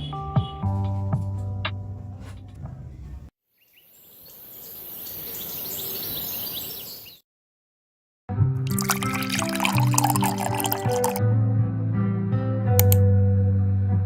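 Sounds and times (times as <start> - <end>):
birds chirping: 3.6 - 7.2
background music: 8.5 - 14.0.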